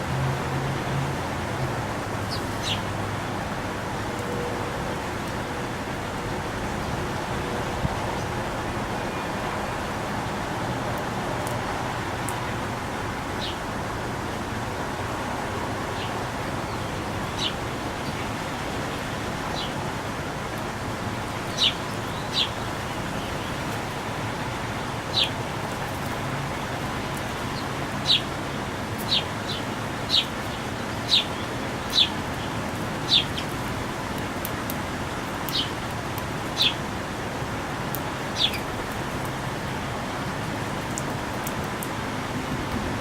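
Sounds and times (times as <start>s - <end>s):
outdoor background hiss: 0.0s - 43.0s
songbird chirping: 29.0s - 33.6s.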